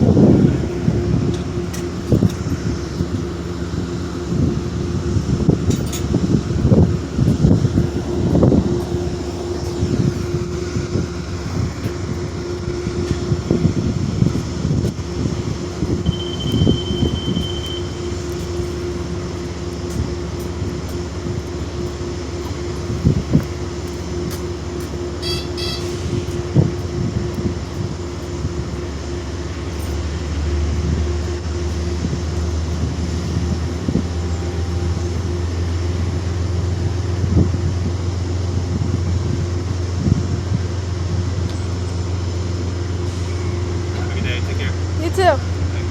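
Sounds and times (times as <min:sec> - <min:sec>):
diesel locomotive rumbling: 0:00.0 - 0:45.9
faint held tone: 0:16.0 - 0:19.1.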